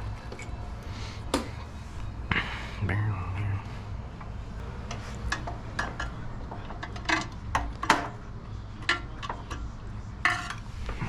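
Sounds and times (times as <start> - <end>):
metal tools clinking and tapping: 4.9 - 8.2, 8.8 - 10.7.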